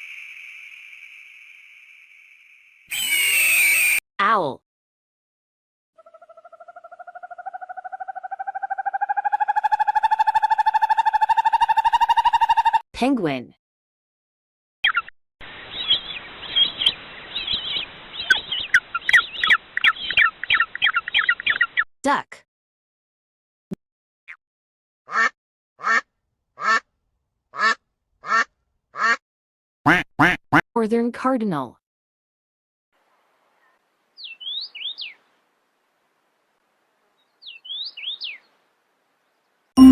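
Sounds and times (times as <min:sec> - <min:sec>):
bird singing whistled phrases: 0:02.9 - 0:04.0, 0:34.2 - 0:35.2, 0:37.4 - 0:38.4
penguin chirps: 0:02.9 - 0:04.0
faint background hiss: 0:33.0 - 0:39.8.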